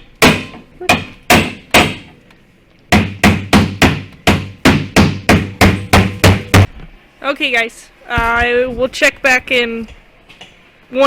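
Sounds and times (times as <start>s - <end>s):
hammer striking car body metal: 0.0s - 2.2s, 2.9s - 6.7s.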